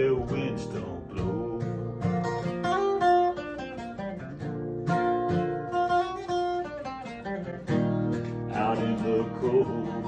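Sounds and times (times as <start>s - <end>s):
acoustic guitar playing: 0.0s - 10.0s.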